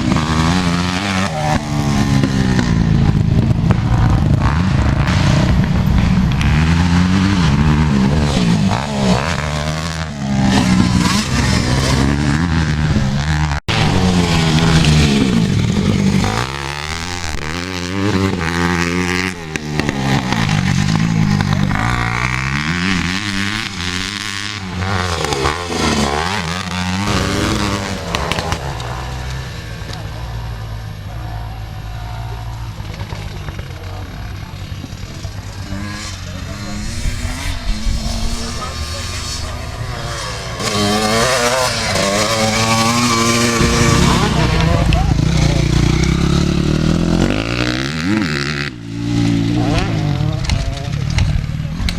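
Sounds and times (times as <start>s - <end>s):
dirt bike engines revving: 0.0s - 51.9s.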